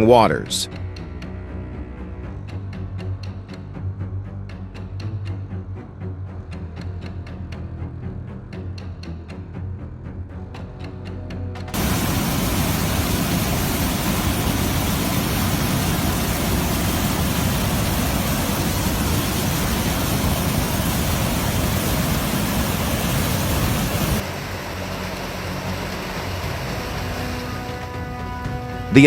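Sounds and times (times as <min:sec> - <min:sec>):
floodwater rushing: 0:11.8 - 0:29.0.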